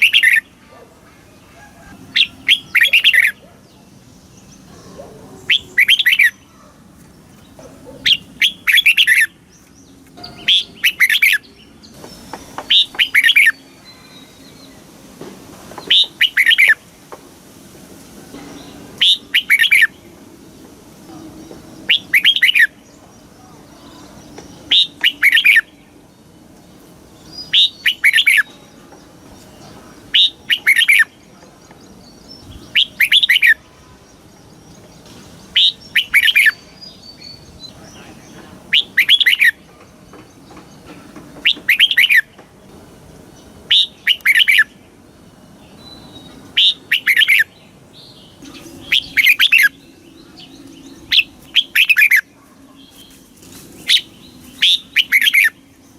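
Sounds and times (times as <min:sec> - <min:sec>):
bird singing short phrases: 0:01.5 - 0:06.7.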